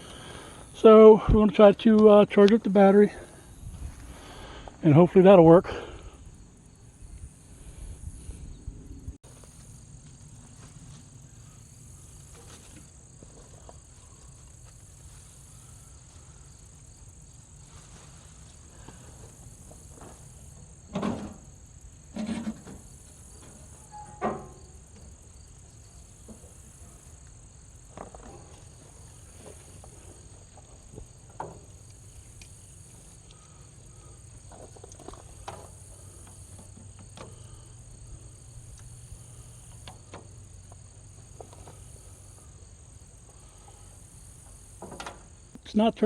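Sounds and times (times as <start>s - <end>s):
crickets and insects chirring: 0.0s - 46.0s
short knocks or clanks: 23.4s - 24.6s.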